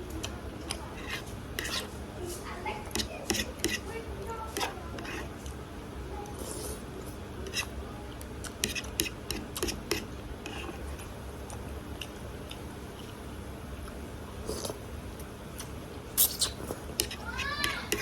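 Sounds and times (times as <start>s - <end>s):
food being chewed: 6.2s - 17.4s
wet mouth clicks: 15.6s - 16.7s.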